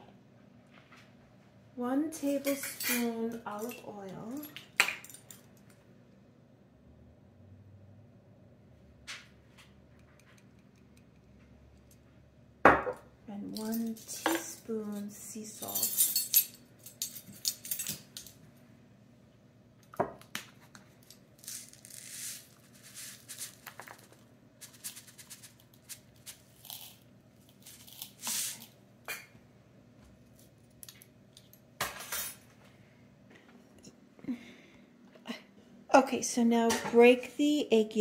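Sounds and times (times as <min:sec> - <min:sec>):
kitchen items knocking and clinking: 0:31.8 - 0:32.4.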